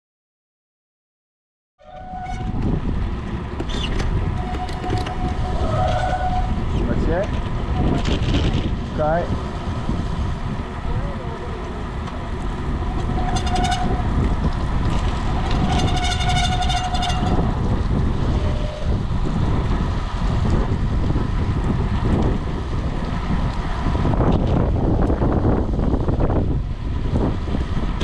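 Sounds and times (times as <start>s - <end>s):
wind buffeting microphone: 1.9s - 28.0s
wet road noise: 2.6s - 28.0s
short high squeals: 3.7s - 6.9s, 12.9s - 14.1s, 15.4s - 17.5s.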